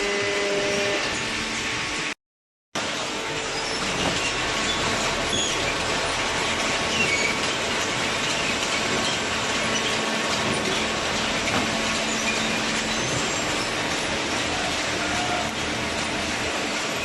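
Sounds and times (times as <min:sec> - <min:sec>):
high squeaks: 0:11.6 - 0:15.6.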